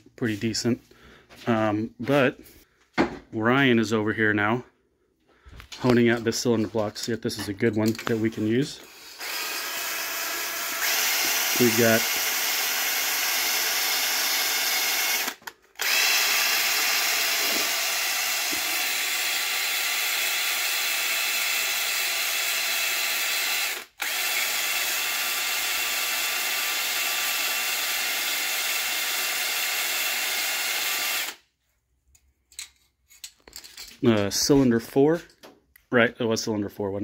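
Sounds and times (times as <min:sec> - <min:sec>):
power drill whirring: 0:08.0 - 0:31.5.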